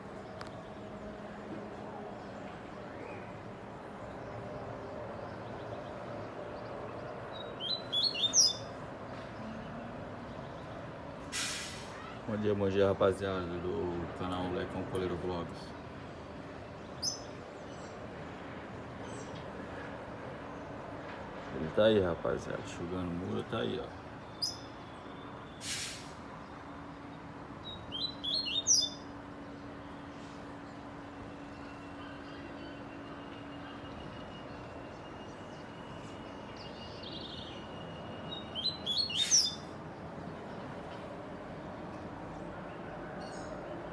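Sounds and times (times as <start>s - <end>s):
bird chirping: 5.1s - 8.8s, 16.8s - 18.0s, 24.2s - 25.6s, 26.4s - 40.7s.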